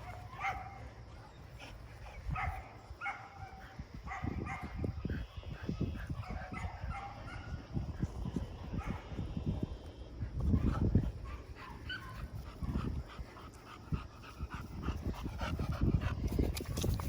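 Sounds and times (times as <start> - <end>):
dogs thumping and scuffling: 10.4 - 17.0.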